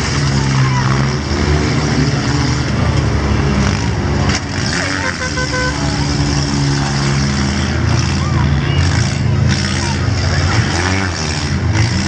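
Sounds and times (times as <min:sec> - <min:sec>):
car engines running hard: 0:00.0 - 0:12.0
crowd chatter: 0:00.0 - 0:12.0
horn tooting: 0:04.7 - 0:06.2.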